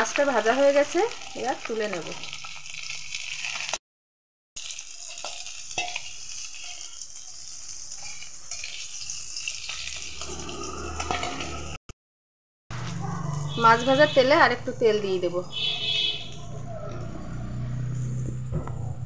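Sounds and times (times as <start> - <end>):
fish sizzling in hot oil: 0.0 - 3.8, 4.6 - 11.8.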